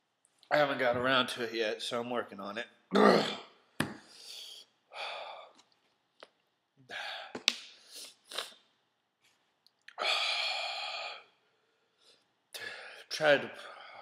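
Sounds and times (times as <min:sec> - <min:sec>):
man breathing hard through mouth: 0:09.9 - 0:11.3.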